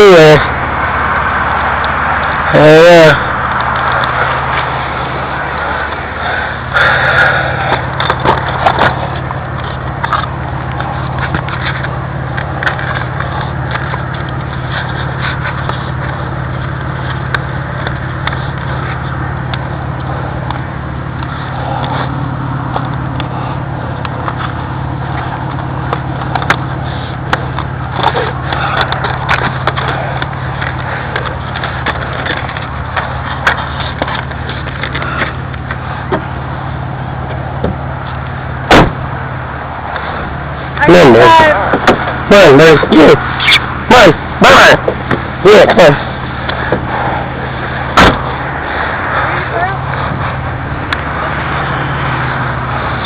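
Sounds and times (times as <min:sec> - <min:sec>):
low vehicle hum: 0:00.0 - 0:53.0.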